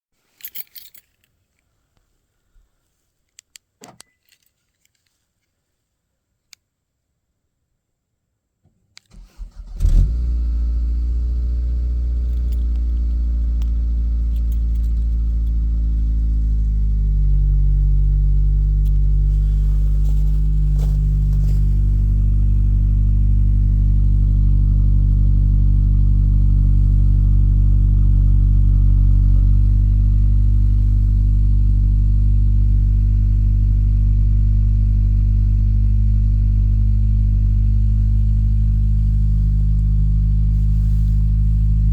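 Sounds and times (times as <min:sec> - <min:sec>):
car engine idling: 0:10.0 - 0:41.9.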